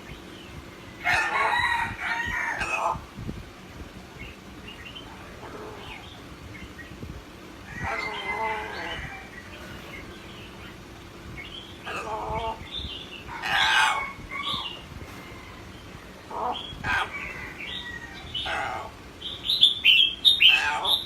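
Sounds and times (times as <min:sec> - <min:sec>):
parrot chirps and squawks: 0:01.0 - 0:03.1, 0:04.7 - 0:06.2, 0:07.7 - 0:10.0, 0:11.7 - 0:14.9, 0:16.3 - 0:21.0.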